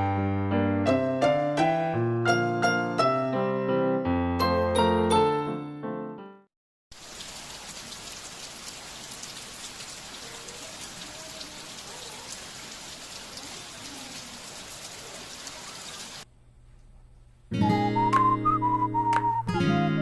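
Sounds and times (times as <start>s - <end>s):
heavy rain falling: 6.9s - 16.2s.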